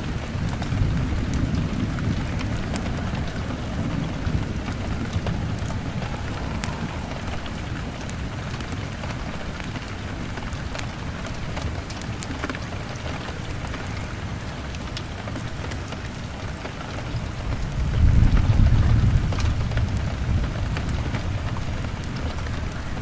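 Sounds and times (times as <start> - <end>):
low rumble: 0.0 - 9.6
fire crackling: 0.0 - 23.0
rain on a window: 0.0 - 23.0.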